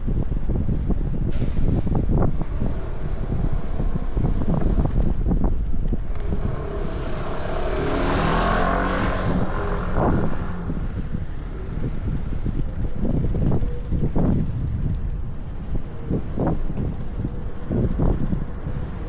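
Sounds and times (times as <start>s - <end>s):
wind buffeting microphone: 0.0s - 19.0s
vehicle passing: 2.5s - 11.9s.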